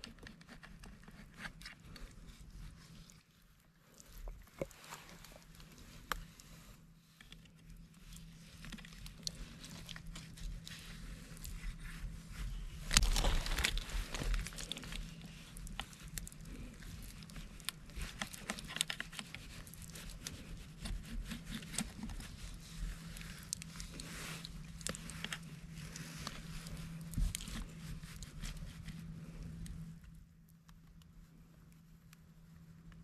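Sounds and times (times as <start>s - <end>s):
steady low hum: 0.0s - 33.0s
hands digging through wet leaves: 8.5s - 29.0s.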